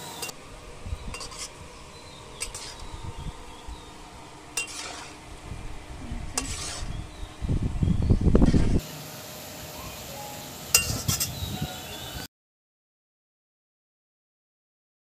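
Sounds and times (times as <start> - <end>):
food sizzling in hot oil: 0.0 - 5.4, 6.4 - 7.2, 8.3 - 12.3
metal ladle clinking on pan: 10.7 - 11.3.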